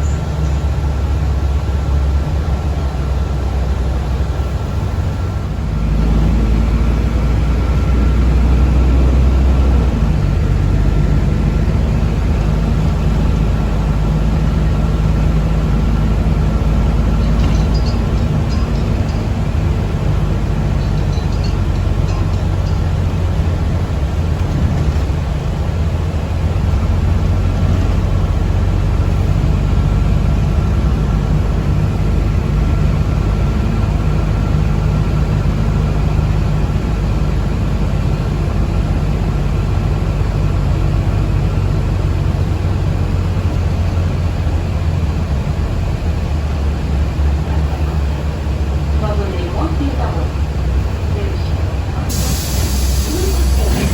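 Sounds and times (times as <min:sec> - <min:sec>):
bus drivetrain drone: 0:00.0 - 0:53.9
road rumble: 0:00.0 - 0:53.9.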